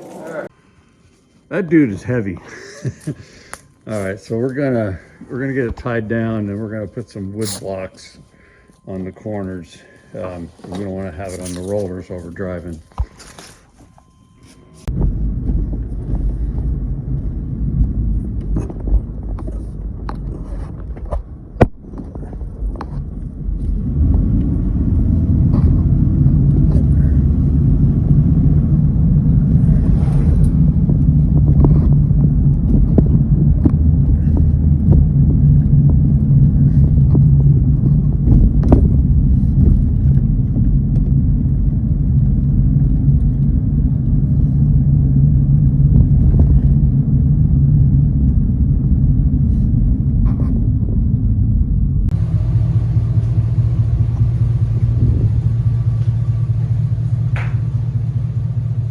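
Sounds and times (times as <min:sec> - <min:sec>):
steady low drone: 0:00.0 - 0:58.9
vehicle engine and road noise: 0:03.2 - 0:58.9
sharp knock: 0:57.3 - 0:57.6.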